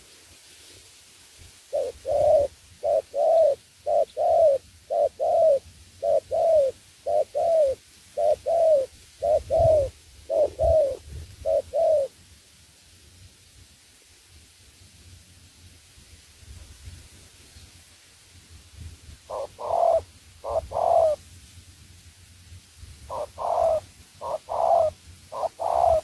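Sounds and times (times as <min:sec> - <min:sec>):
dove cooing: 0:01.7 - 0:12.2, 0:19.3 - 0:21.2, 0:23.1 - 0:26.0.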